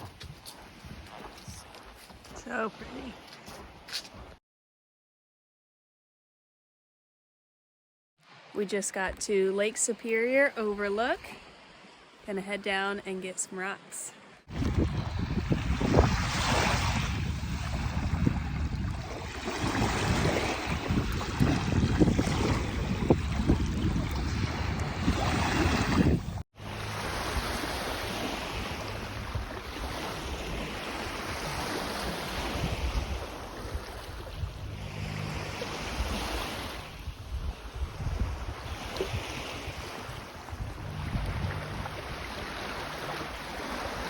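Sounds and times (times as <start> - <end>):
wind on microphone: 0.0 - 1.8, 14.5 - 26.4, 27.0 - 44.0
waves washing onto shore: 14.4 - 44.0.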